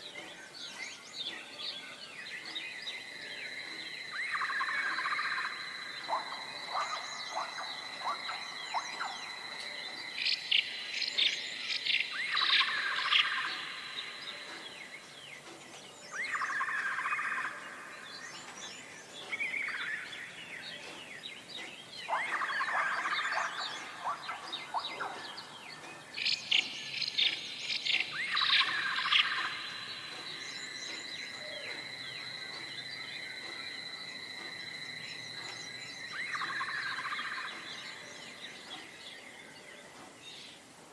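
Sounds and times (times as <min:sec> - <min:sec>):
songbirds chirping and singing: 0:00.0 - 0:40.9.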